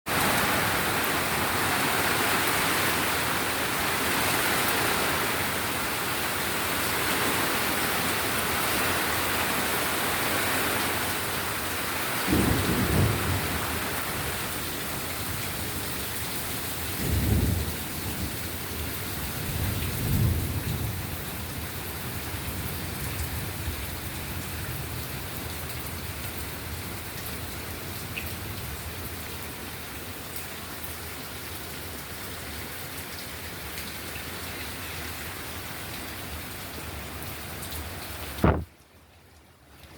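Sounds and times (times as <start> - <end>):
steady rain falling: 0.1 - 39.9
low rumbles of thunder: 12.2 - 14.6, 17.0 - 18.5, 19.2 - 23.9.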